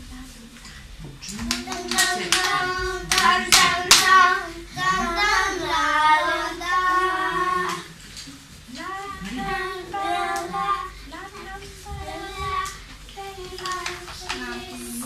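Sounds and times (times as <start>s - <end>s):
sharp handclaps: 1.2s - 4.3s, 13.4s - 14.8s
children singing: 1.4s - 8.0s, 8.7s - 15.0s.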